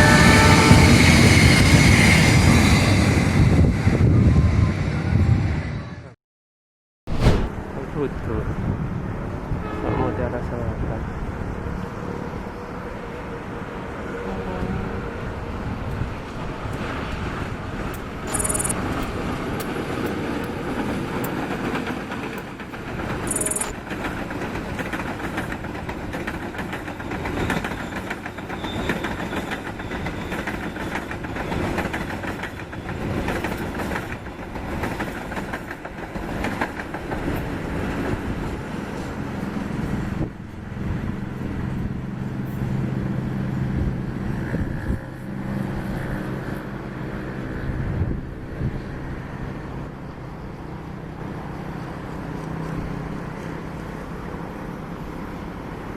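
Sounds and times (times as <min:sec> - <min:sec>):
train wheels clattering over rails: 0:19.0 - 0:38.3.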